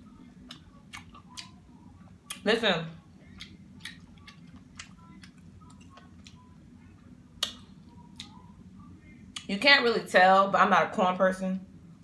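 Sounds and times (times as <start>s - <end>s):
mouth clicks and chewing: 0.4s - 1.6s, 3.3s - 6.5s.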